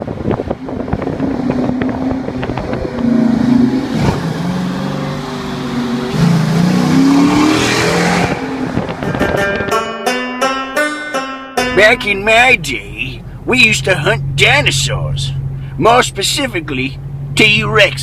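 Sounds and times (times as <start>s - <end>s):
car engine revving: 0.0s - 9.8s, 11.7s - 18.0s.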